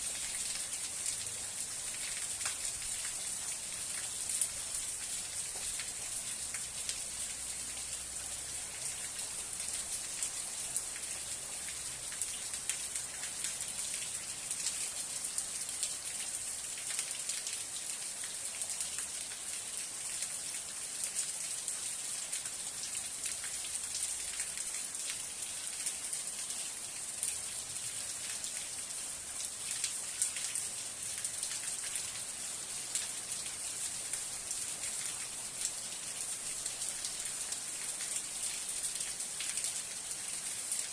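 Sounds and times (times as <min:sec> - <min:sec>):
raindrops ticking close by: 0:00.0 - 0:19.8
steady rain hissing: 0:00.0 - 0:40.9.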